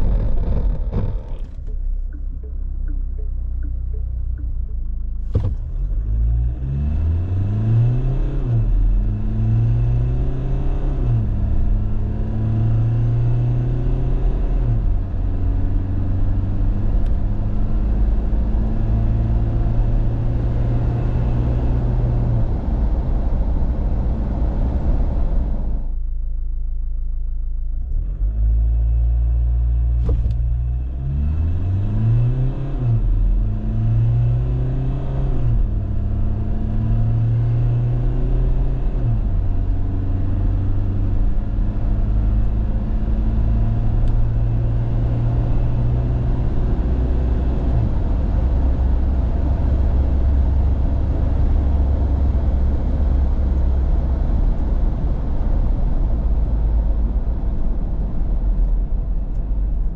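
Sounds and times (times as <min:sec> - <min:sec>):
diesel engine accelerating: 0:00.0 - 0:26.0, 0:27.7 - 0:59.9
road rumble: 0:00.0 - 0:59.9.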